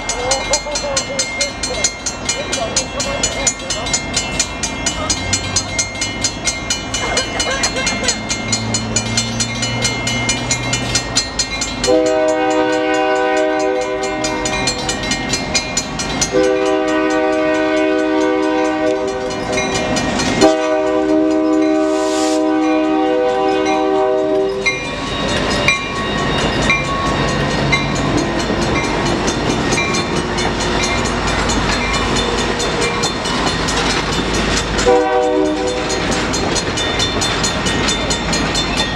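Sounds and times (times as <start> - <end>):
train rumbling and clacking: 0.0 - 38.9
locomotive horn blasts: 11.9 - 14.6, 16.3 - 19.4, 20.4 - 24.7, 34.8 - 36.0.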